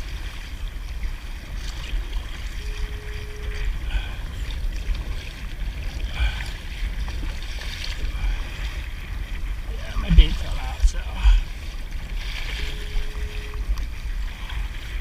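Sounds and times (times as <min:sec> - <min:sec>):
low wind rumble: 0:00.0 - 0:15.0
water lapping against a kayak: 0:00.0 - 0:15.0
steady tone: 0:09.6 - 0:11.5, 0:12.4 - 0:13.8.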